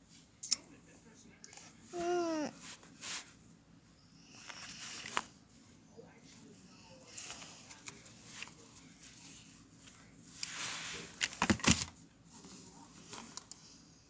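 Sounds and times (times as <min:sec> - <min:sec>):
soft rustle: 0:01.5 - 0:03.6, 0:04.3 - 0:11.4.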